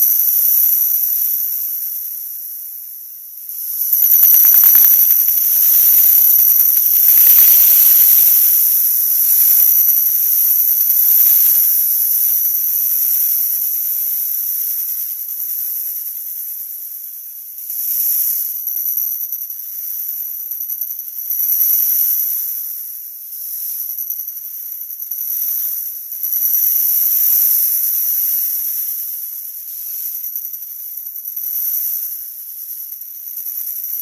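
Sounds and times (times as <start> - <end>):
high hissing whine: 0.0 - 14.9.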